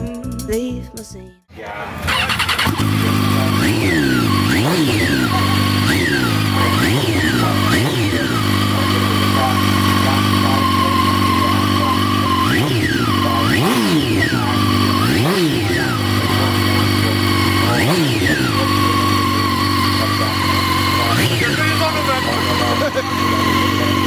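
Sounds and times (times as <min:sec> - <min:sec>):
motorcycle engine idling and revving: 0:01.7 - 0:24.0.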